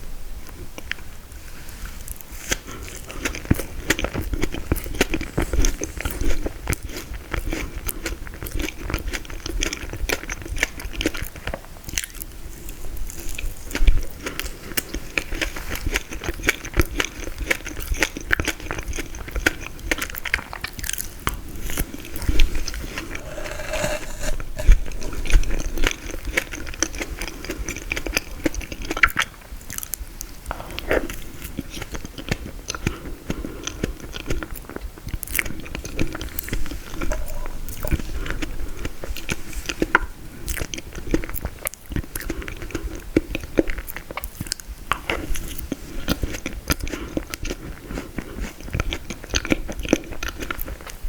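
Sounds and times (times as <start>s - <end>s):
crunchy biting and chewing: 2.1s - 51.0s.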